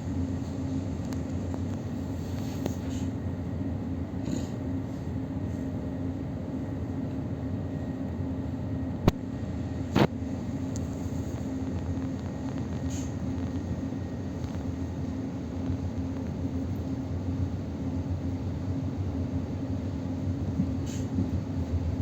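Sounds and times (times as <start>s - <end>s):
electric train rumbling: 9.3s - 22.0s.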